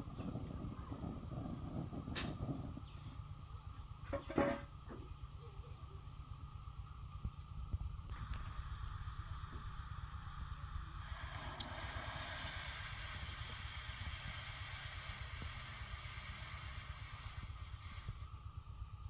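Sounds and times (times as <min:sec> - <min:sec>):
continuous low rumble: 0:00.0 - 0:19.0
steady hiss: 0:08.1 - 0:18.4.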